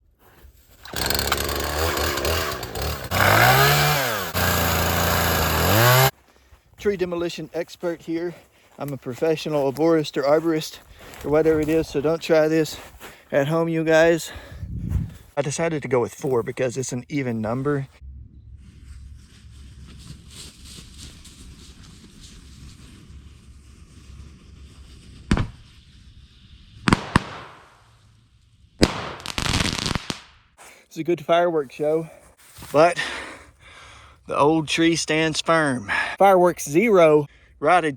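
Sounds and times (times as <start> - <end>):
small engine revving: 0.8 - 6.1
crackling fireworks: 23.9 - 28.0, 28.8 - 30.3
fireworks bangs: 26.8 - 27.8, 28.8 - 30.2.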